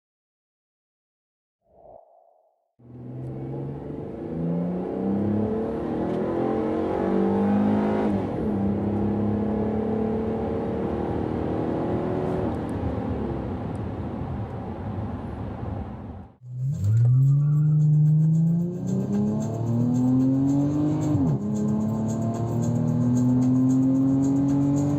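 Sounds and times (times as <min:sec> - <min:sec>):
car engine accelerating: 0:02.8 - 0:13.9, 0:16.4 - 0:24.9.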